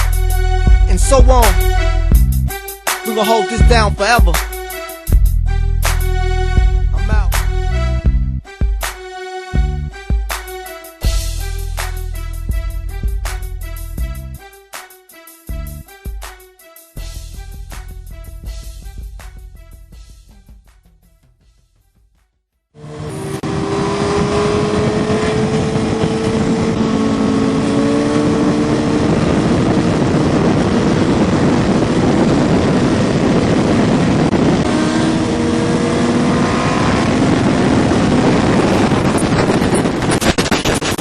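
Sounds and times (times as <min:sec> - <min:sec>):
motorcycle engines running: 0:22.8 - 0:40.3
wind noise on microphone: 0:22.9 - 0:41.0.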